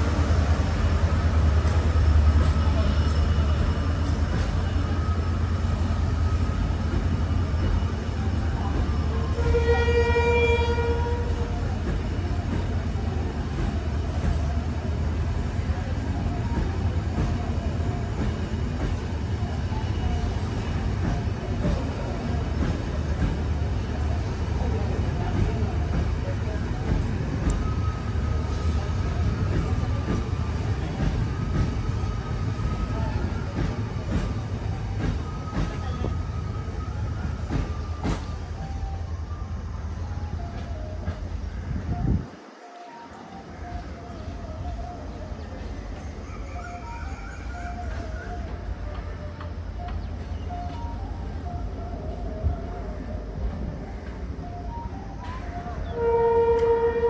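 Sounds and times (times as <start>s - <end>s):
passenger coaches rumbling on track: 0.0s - 57.0s
train horn blast: 9.2s - 11.6s, 55.3s - 57.0s
faint high wheel squeal: 27.5s - 53.1s.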